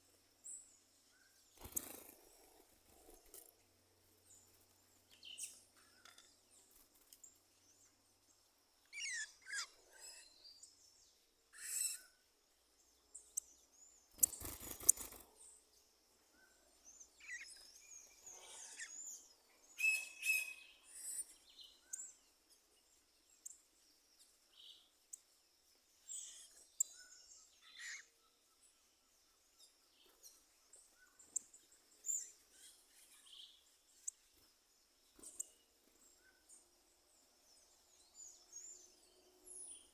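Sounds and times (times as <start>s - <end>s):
birds chirping and singing: 8.8s - 11.0s, 16.4s - 22.2s, 26.0s - 28.4s.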